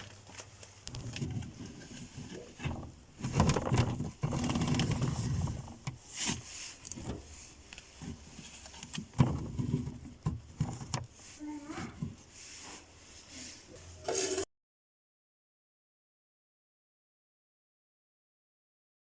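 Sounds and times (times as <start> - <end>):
continuous handling noise: 0.0 - 14.5.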